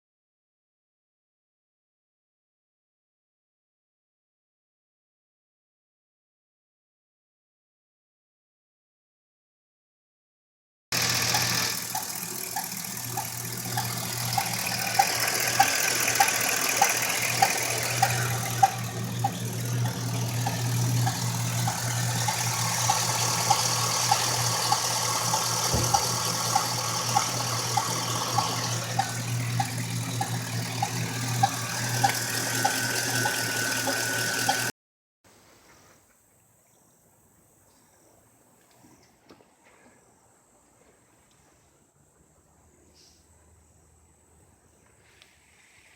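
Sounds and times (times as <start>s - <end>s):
engine running with ticking: 11.0s - 34.7s.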